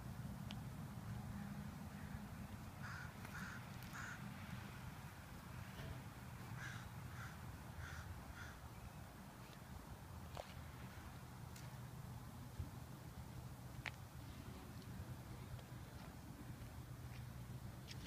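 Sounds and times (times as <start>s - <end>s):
steady low rumble: 0.0s - 18.0s
bird calling: 2.8s - 4.2s.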